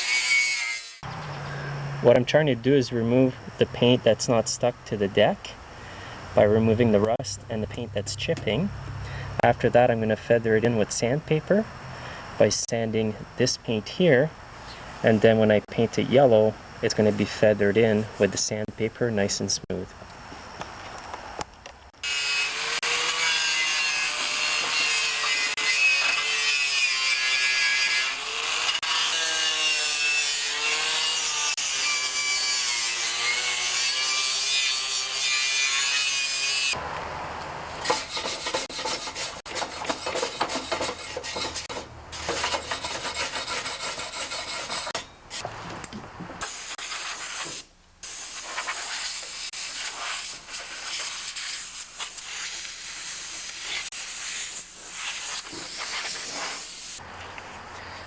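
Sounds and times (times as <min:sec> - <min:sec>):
wire brush scraping metal: 0:37.8 - 0:45.5, 0:46.4 - 0:56.7.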